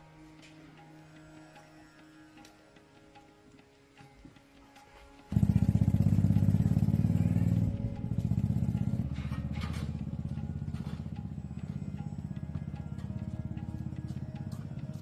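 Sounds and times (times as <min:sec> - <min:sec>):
tractor diesel engine knocking: 0:05.3 - 0:15.0.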